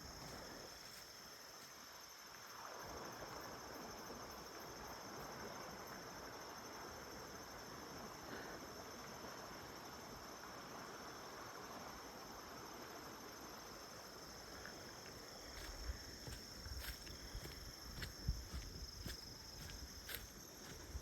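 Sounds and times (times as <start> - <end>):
insects trilling: 7.3 - 21.0
footsteps on a trail: 14.6 - 21.0.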